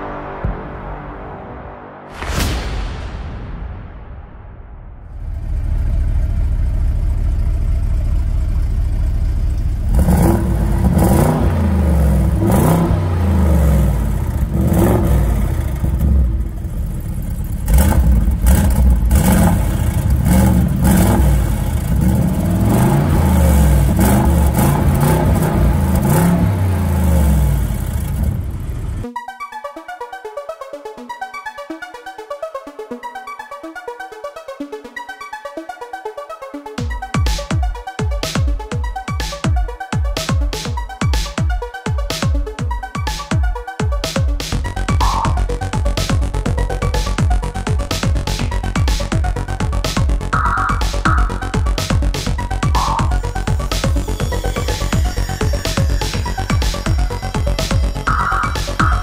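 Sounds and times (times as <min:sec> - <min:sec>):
car engine idling: 0:05.1 - 0:29.1, 0:50.2 - 0:59.0
car engine revving: 0:05.1 - 0:29.1, 0:50.3 - 0:59.0
electronic music: 0:29.0 - 0:59.0.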